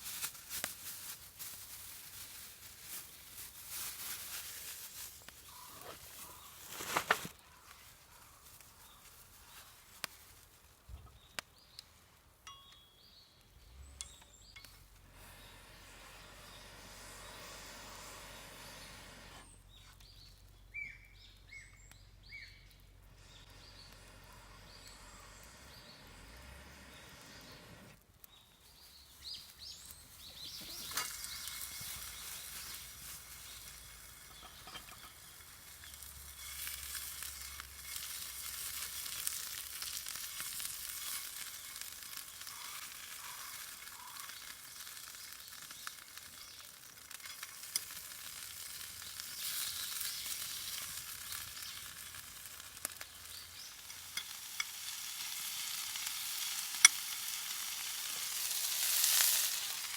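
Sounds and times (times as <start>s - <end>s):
food sizzling in a pan: 29.2s - 59.9s.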